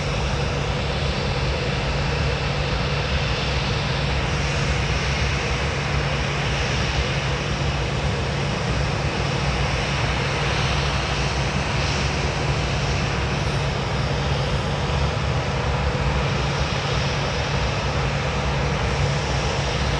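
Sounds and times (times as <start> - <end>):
jet engines running: 0.0 - 19.9.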